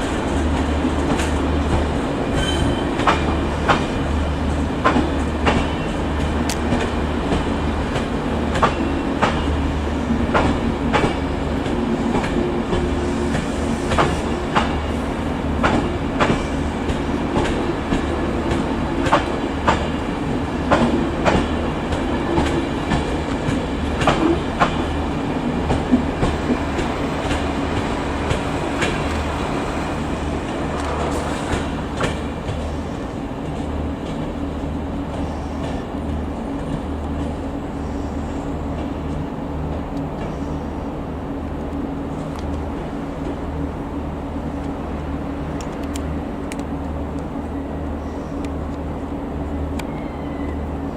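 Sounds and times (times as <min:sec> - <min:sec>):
diesel locomotive engine hum: 0:00.0 - 0:50.9
train wheels clicking over rail joints: 0:04.7 - 0:34.4.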